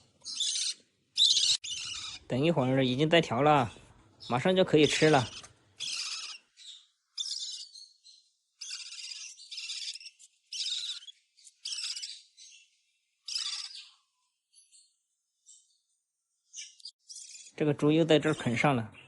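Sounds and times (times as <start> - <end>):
parrot chick begging squawks: 0.2 - 2.3, 4.8 - 8.0, 8.6 - 12.3, 13.3 - 13.9.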